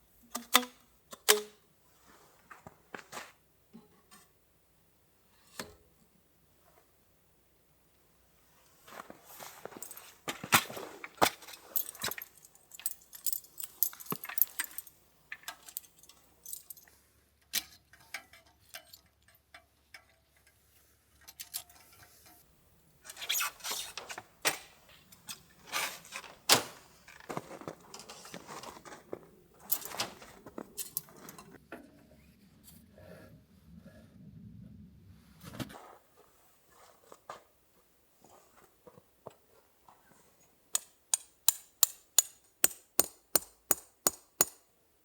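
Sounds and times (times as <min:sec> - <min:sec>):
small hard objects clinking: 0:09.4 - 0:16.9.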